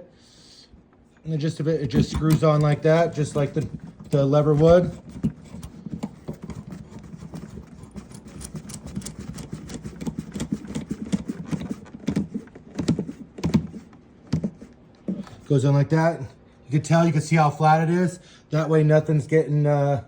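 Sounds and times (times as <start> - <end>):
knob screwing clicks and taps: 1.8 - 14.6.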